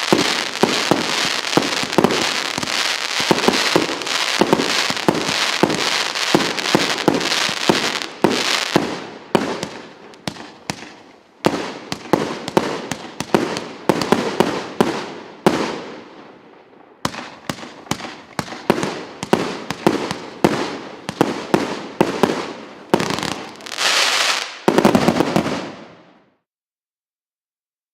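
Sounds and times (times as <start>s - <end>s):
fireworks shots and aerial bursts: 0.0s - 26.5s.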